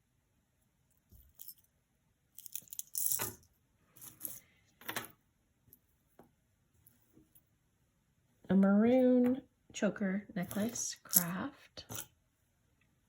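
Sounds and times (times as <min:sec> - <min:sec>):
jewelry clinking and jangling: 0:01.0 - 0:05.0, 0:10.4 - 0:12.1.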